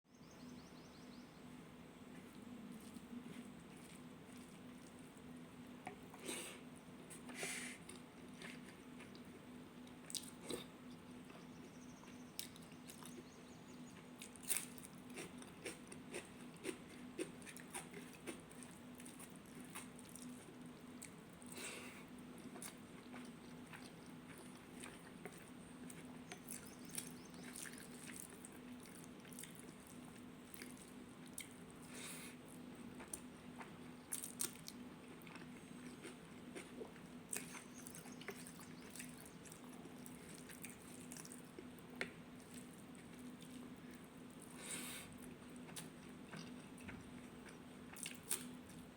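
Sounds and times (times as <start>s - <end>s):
steady low hum: 0.1s - 48.9s
soft chewing: 2.1s - 48.9s.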